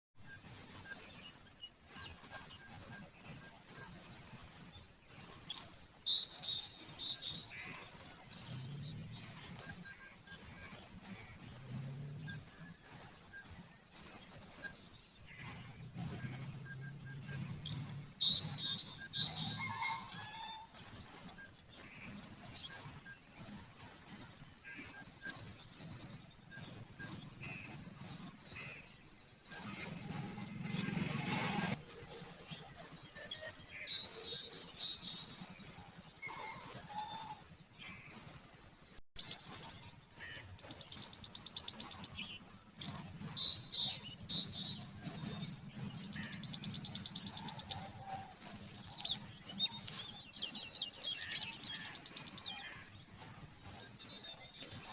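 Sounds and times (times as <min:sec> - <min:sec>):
rustling noise: 0:29.6 - 0:32.9
budgerigars chirping: 0:42.8 - 0:50.0.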